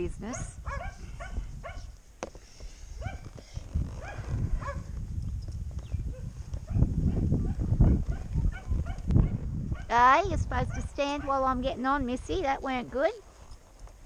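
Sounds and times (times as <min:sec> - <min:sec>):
wind rumbling on microphone: 0:00.0 - 0:14.0
dog barking: 0:00.3 - 0:01.9, 0:03.0 - 0:03.3, 0:04.0 - 0:04.9, 0:06.1 - 0:09.9, 0:10.7 - 0:11.4.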